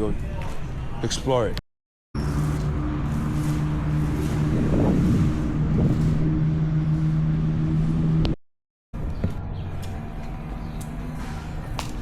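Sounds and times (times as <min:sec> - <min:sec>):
vehicle engine humming: 0:02.2 - 0:08.4.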